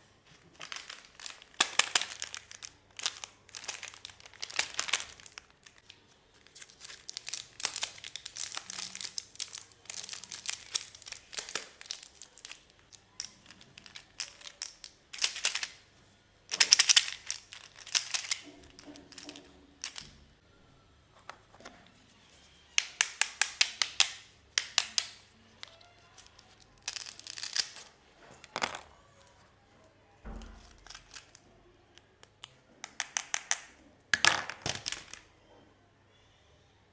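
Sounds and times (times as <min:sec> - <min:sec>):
packaging wrapper crinkling and tearing: 0:00.3 - 0:15.8, 0:16.5 - 0:20.1, 0:22.7 - 0:29.2, 0:30.3 - 0:35.3.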